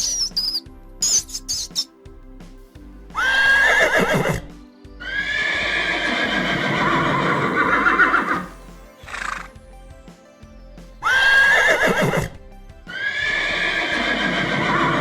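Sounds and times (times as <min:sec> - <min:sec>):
loud animal calls: 0:06.2 - 0:08.5.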